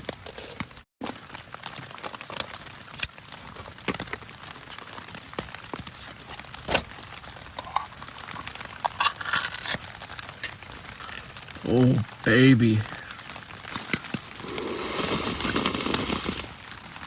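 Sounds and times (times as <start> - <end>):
materials crinkling and clicking: 0.0 - 11.6, 13.3 - 14.5
steady hiss: 13.8 - 16.5.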